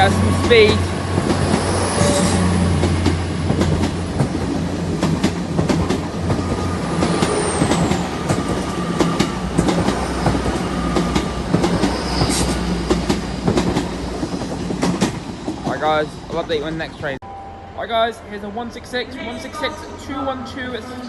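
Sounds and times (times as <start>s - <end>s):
train wheels clicking over rail joints: 0.0s - 17.2s
high wheel squeal: 1.6s - 2.7s, 11.8s - 12.7s.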